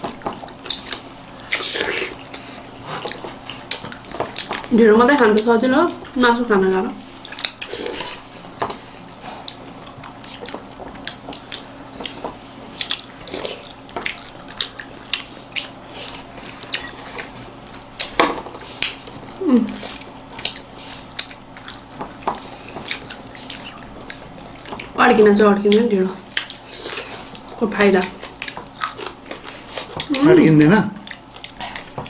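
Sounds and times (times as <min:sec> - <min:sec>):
wet eating smacks: 0:00.0 - 0:04.7, 0:07.1 - 0:25.0, 0:25.7 - 0:30.2.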